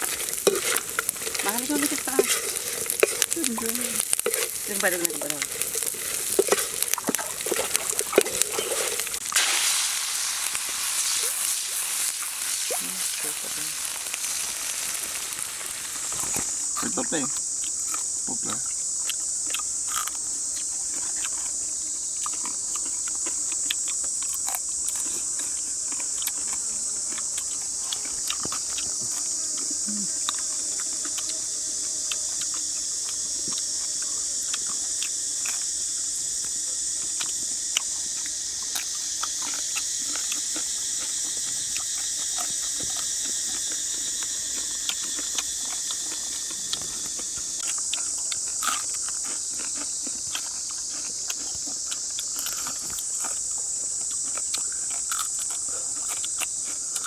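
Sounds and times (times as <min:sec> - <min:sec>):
sharp clicks and ticks: 0:00.0 - 0:09.2
insect chorus: 0:00.0 - 0:57.0.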